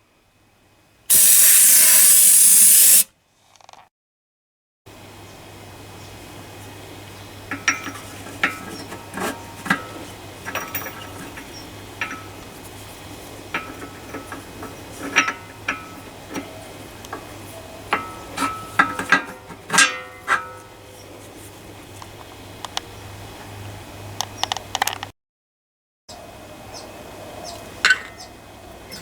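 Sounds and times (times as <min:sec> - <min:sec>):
metal tools clinking: 0:07.5 - 0:12.4.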